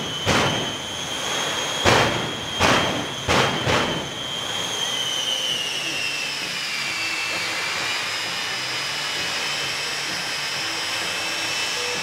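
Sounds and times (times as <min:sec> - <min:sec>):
high jet whine: 0:00.0 - 0:12.0
jet engines rushing: 0:00.0 - 0:12.0.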